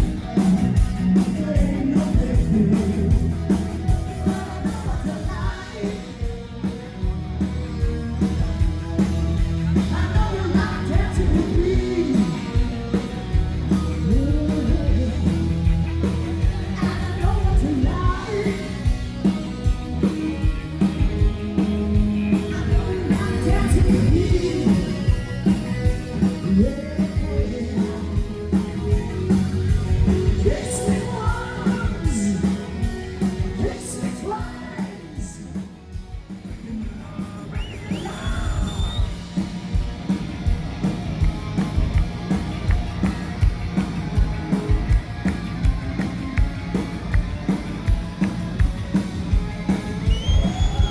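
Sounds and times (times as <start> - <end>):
live rock and roll band: 0.0 - 50.9
person singing: 1.1 - 6.4, 9.8 - 12.8, 13.8 - 15.5, 16.4 - 19.0, 22.4 - 25.4, 26.1 - 29.0, 30.1 - 35.6.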